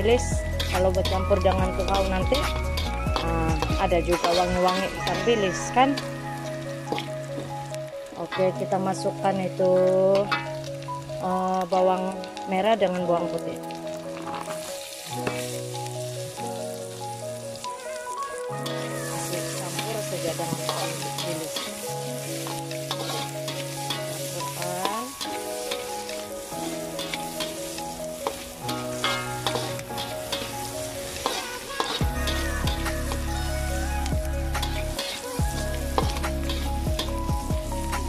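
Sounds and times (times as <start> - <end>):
background music with held notes: 0.0 - 38.0
onion and garlic sizzling in oil: 0.0 - 38.0
metal spatula scraping wok: 0.1 - 7.6, 14.2 - 15.6, 18.6 - 37.2.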